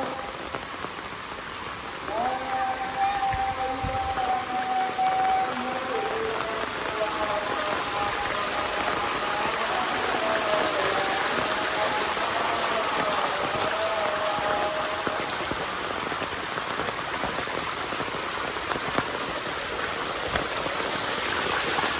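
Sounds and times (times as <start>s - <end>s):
soft rain falling: 0.0s - 21.9s.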